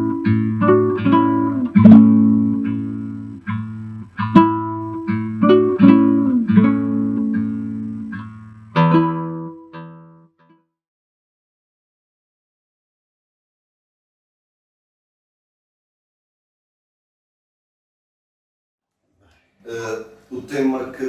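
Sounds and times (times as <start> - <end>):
acoustic guitar melody: 0.0 - 10.6.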